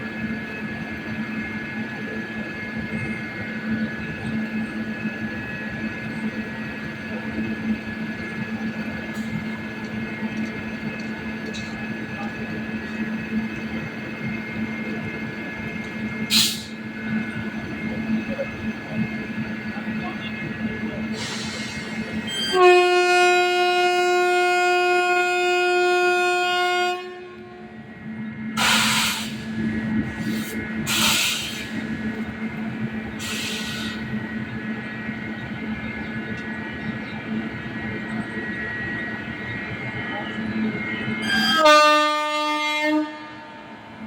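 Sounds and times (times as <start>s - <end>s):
electric locomotive humming: 0.0s - 44.0s
train rumble: 0.0s - 44.0s
locomotive horn blast: 22.3s - 27.7s, 41.2s - 43.6s.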